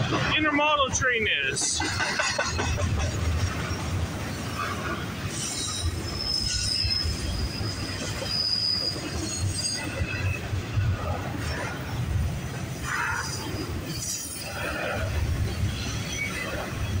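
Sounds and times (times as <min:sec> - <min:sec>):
freight train wheels rumbling: 0:00.0 - 0:17.0
high wheel squeal: 0:04.4 - 0:10.4.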